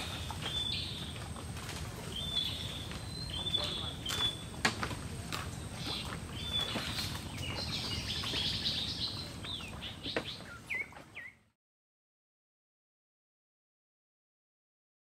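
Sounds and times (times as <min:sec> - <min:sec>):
birds chirping: 0:00.0 - 0:11.6.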